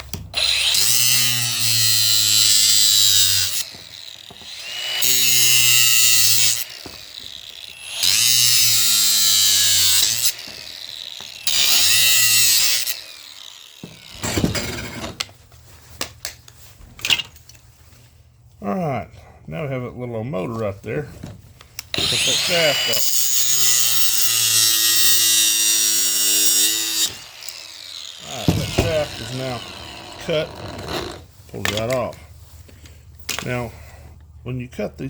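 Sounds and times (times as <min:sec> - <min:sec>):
power drill-driver running: 0:00.4 - 0:14.3, 0:21.9 - 0:31.2.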